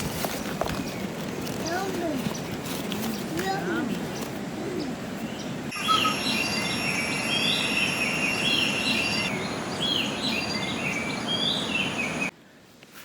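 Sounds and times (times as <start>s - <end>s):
river water flowing: 3.9s - 12.3s
bird short rising calls: 5.7s - 12.3s
insects high-pitched tones: 5.7s - 12.3s.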